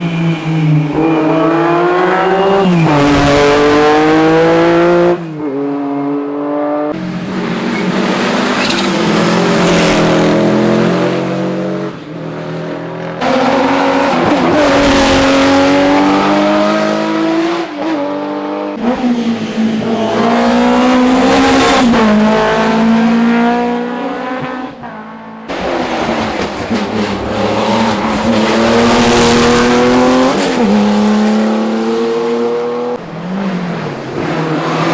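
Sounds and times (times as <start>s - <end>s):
rally car engines revving: 0.0s - 34.9s
tyre squeal: 7.7s - 10.4s.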